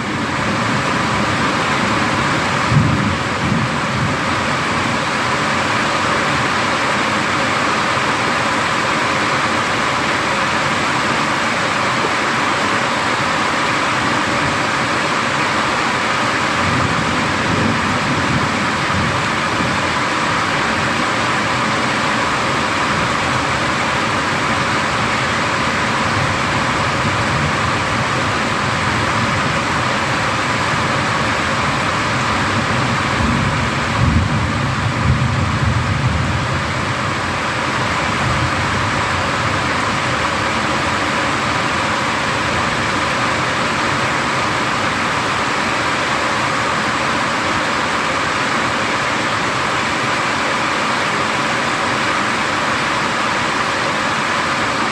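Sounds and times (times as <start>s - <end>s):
heavy rain falling: 0.0s - 54.9s
low thunder rumbles: 2.5s - 5.0s, 31.6s - 39.8s.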